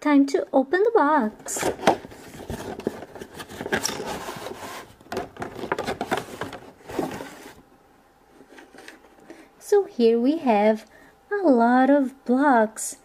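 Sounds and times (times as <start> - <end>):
cardboard scraping and rustling: 1.5 - 7.6.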